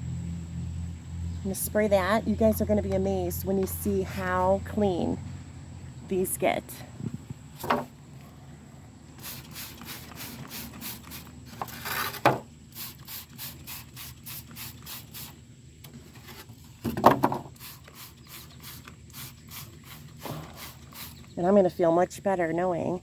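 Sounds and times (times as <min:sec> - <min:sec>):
handling knocks: 0:07.6 - 0:07.9
spray bottle hissing: 0:09.2 - 0:11.6, 0:12.7 - 0:15.4, 0:17.5 - 0:21.4.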